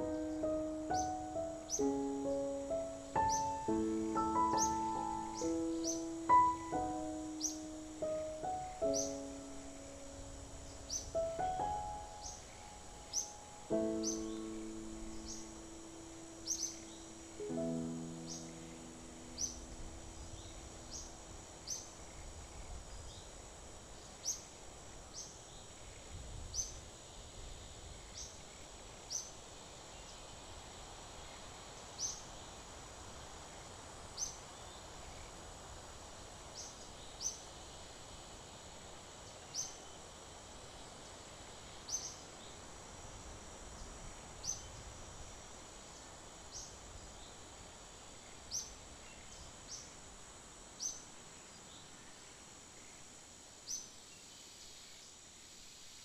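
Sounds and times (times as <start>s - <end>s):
bird chirping: 0.0s - 22.3s
insect hum: 0.0s - 56.0s.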